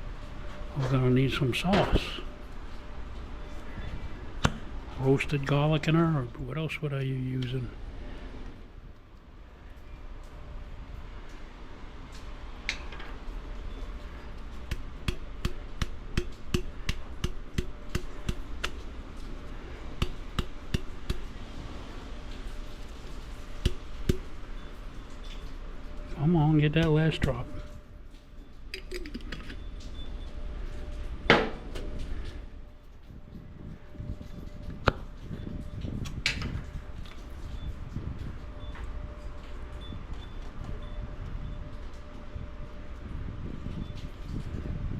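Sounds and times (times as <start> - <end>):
low outdoor rumble: 0.0 - 44.9
sharp knocks: 4.4 - 4.7, 14.7 - 18.9, 20.0 - 21.4, 23.6 - 24.4.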